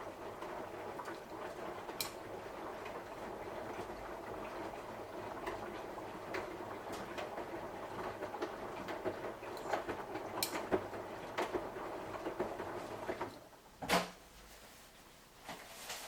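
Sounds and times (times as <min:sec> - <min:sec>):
washing machine drum churning: 0:00.0 - 0:14.3
laundry clicks and knocks: 0:03.7 - 0:14.2.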